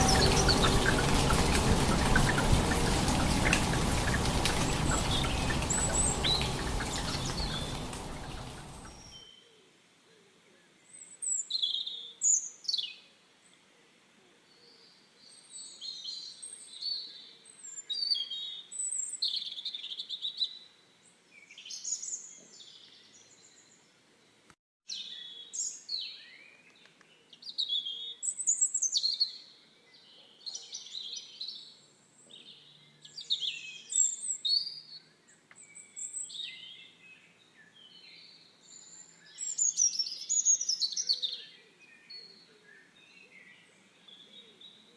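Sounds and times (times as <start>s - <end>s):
songbirds chirping and singing: 0.0s - 9.4s.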